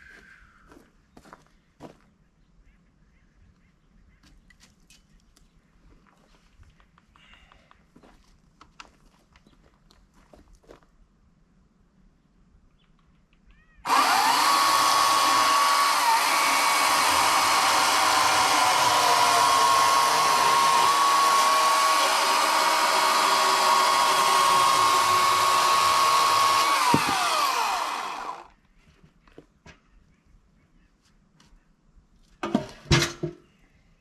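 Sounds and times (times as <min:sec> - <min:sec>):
electric chainsaw whine: 0:13.9 - 0:28.5.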